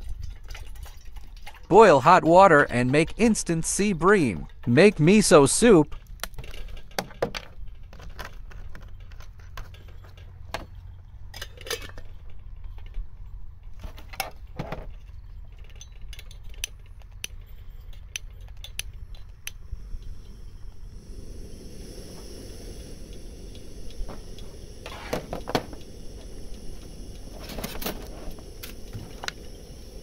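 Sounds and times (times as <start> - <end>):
metal camp pot clinks and taps: 11.3 - 13.0, 14.8 - 19.6
low background rumble: 14.4 - 30.0.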